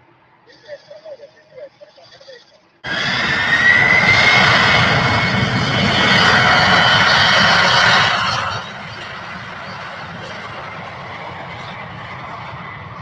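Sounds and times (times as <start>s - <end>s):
jet engines roaring at takeoff: 2.8s - 13.0s.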